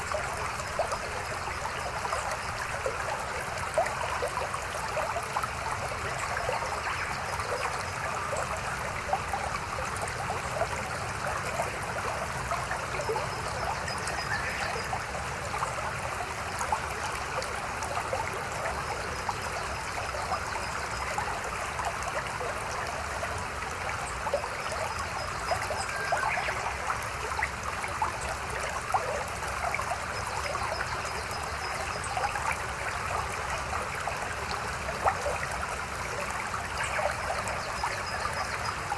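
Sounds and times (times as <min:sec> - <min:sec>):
stream babbling over rocks: 0:00.0 - 0:38.9.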